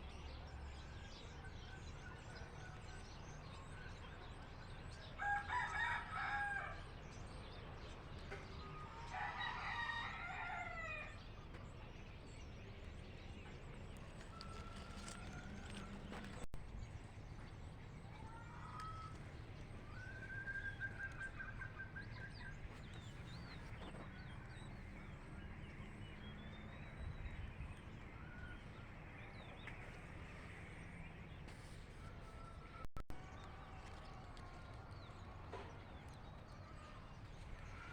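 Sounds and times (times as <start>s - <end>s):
rooster crowing: 5.2s - 6.9s, 8.8s - 11.2s.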